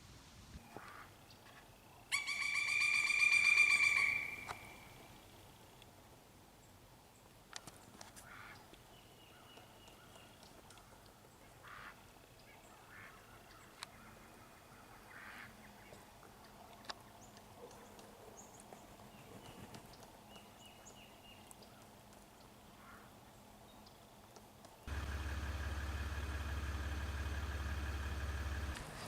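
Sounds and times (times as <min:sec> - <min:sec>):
ducks quacking faintly: 0:10.8 - 0:16.8.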